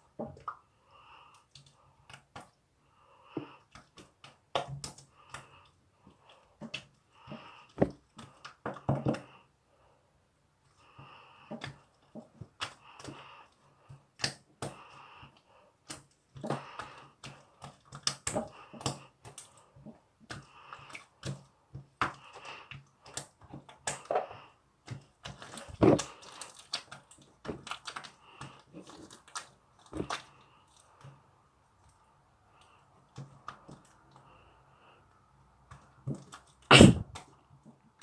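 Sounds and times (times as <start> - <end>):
slime squishing and squelching: 0.0 - 9.5, 10.5 - 38.0.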